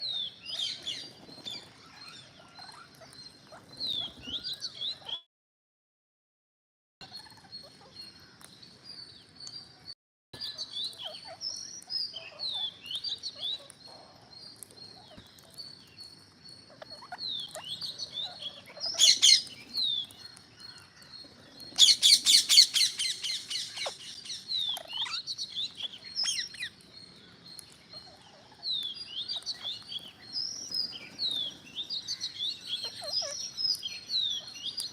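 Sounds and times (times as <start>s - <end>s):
parrots chirping: 10.5s - 34.9s.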